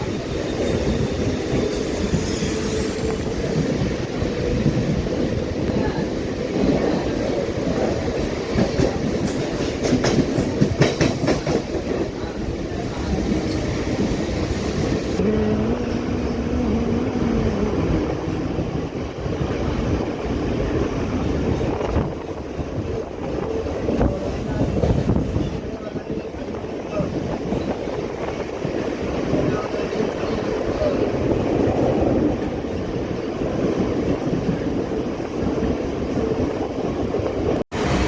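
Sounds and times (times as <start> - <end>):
train wheels clattering on rails: 0.0 - 15.2.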